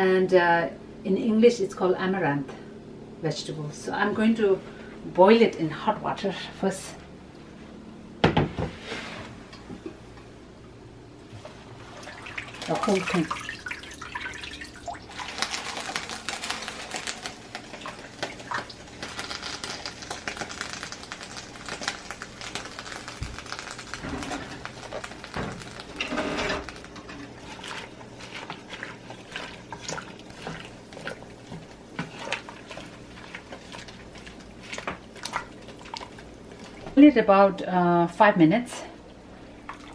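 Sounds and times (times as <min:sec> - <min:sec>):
water boiling: 0:09.6 - 0:37.6, 0:39.0 - 0:39.9
greens crackling and clicking: 0:14.5 - 0:28.6.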